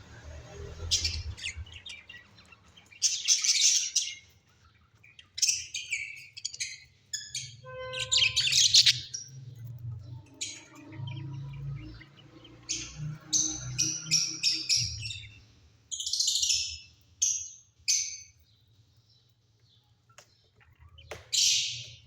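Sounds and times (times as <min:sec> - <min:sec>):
birds chirping and chattering: 0:00.0 - 0:22.0.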